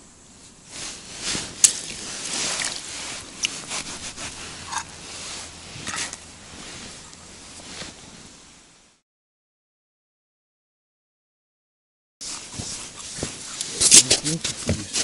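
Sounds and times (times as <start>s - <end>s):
clothing rustling and scraping: 0.7s - 8.5s, 12.2s - 15.0s.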